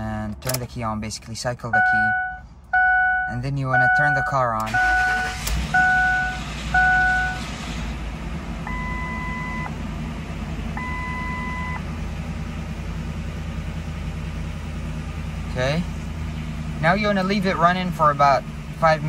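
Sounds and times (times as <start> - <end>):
car engine idling: 0.0 - 19.0
dashboard warning beeps: 1.6 - 7.5, 8.7 - 9.7, 10.8 - 11.8.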